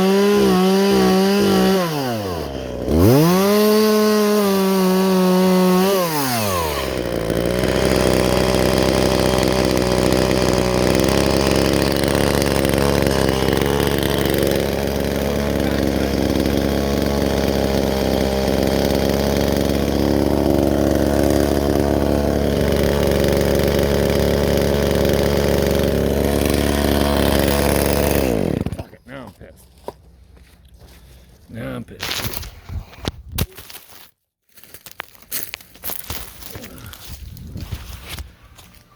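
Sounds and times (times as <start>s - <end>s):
chainsaw revving and idling: 0.0s - 29.0s, 35.9s - 37.2s.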